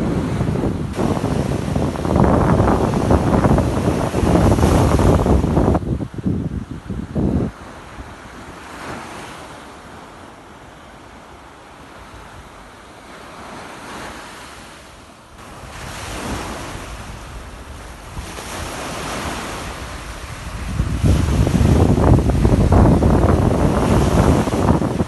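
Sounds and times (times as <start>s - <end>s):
wind buffeting microphone: 0.0s - 10.0s, 15.4s - 25.0s
sea waves washing in: 0.0s - 25.0s.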